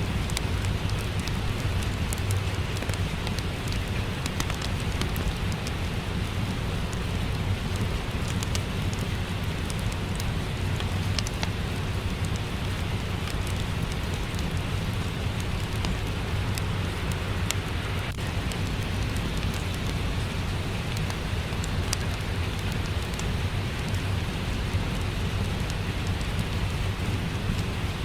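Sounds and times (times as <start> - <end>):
fireplace pops and crackles: 0.0 - 28.0
steady rain: 0.0 - 28.0.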